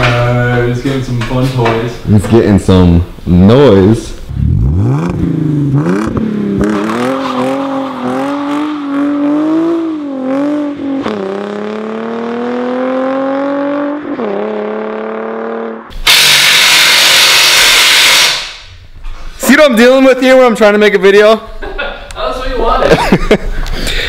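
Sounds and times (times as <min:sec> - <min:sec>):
car engine accelerating: 0:04.3 - 0:15.9
loud steady hissing: 0:15.9 - 0:18.8.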